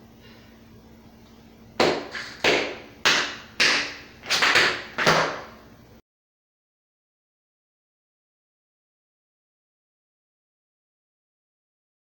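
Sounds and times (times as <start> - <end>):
tap shoes on hard floor: 1.8 - 5.5.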